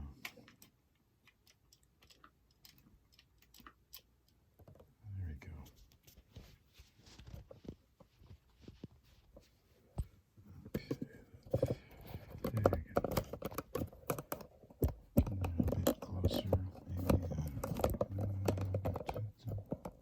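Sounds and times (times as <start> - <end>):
objects being handled clicking: 10.7 - 20.0.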